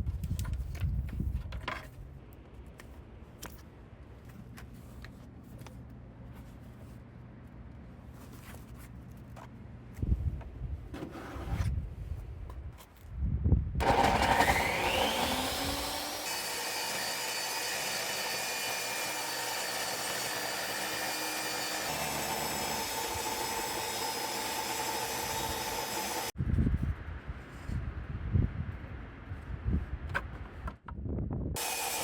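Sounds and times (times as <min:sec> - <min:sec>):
table saw motor whining: 0:13.8 - 0:26.3, 0:31.6 - 0:32.0.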